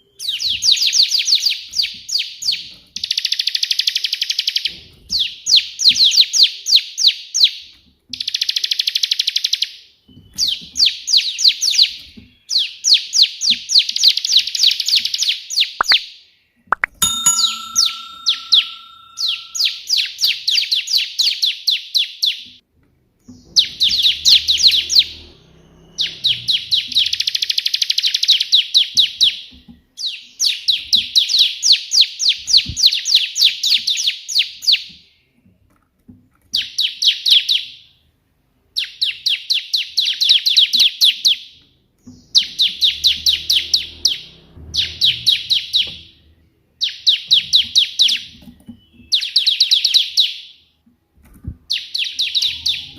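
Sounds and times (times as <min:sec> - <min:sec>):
bird singing rapid high notes: 0:16.8 - 0:20.1.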